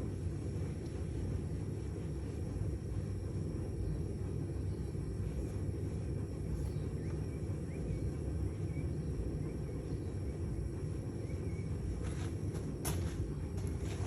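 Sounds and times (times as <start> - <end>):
faint bird chirps: 6.4 - 12.0.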